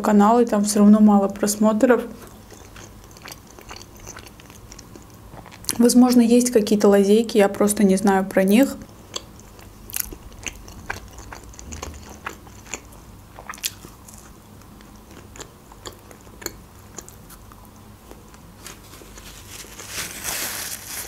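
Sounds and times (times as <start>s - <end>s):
person chewing crunchy pizza: 2.1s - 5.8s, 8.9s - 19.5s
paper napkin rustling: 18.6s - 21.0s.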